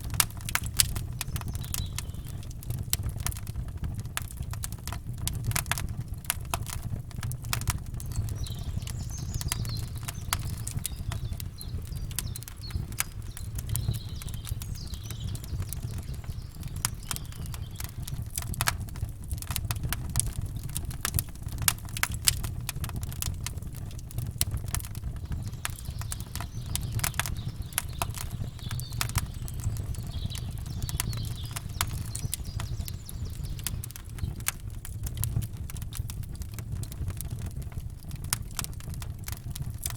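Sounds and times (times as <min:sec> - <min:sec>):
campfire crackling and popping: 0:00.0 - 0:39.9
faint bird chirps: 0:08.0 - 0:18.4, 0:25.1 - 0:34.4.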